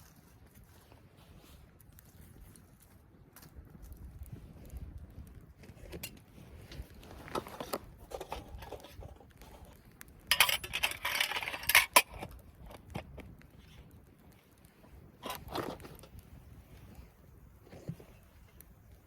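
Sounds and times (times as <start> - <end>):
metal items clinking: 7.2 - 9.7, 10.3 - 13.2.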